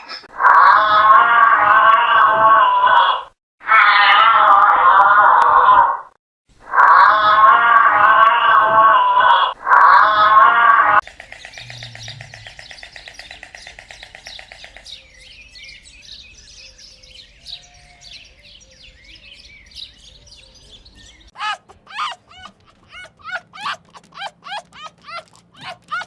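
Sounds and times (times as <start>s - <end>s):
downward sweeping bird calls: 9.8s - 26.0s
high bird chirps: 11.0s - 23.8s
birds trilling: 11.0s - 26.0s.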